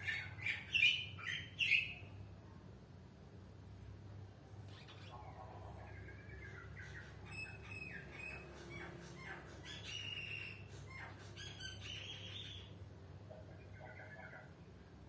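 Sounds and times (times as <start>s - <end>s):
bird chirping and calling: 0.0s - 2.1s, 4.7s - 12.8s
low steady hum: 0.0s - 15.0s.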